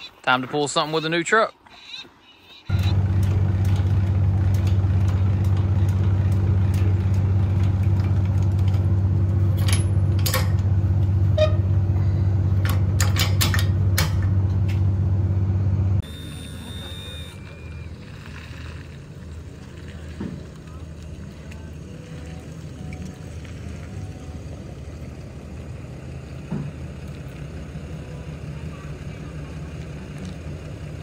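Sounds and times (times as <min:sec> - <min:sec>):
truck engine idling: 0:02.7 - 0:31.0
metallic clicks and clanks: 0:09.5 - 0:10.7, 0:12.6 - 0:14.6.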